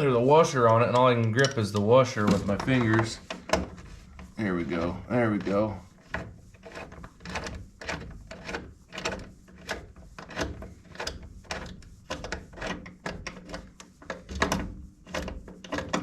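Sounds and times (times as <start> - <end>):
hand tools clicking and scraping metal: 0.0 - 16.0.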